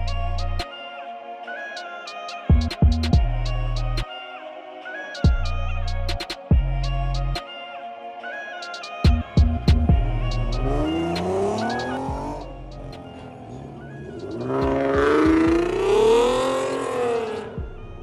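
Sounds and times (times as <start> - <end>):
background music: 0.0 - 18.0
car engine revving: 9.2 - 18.0.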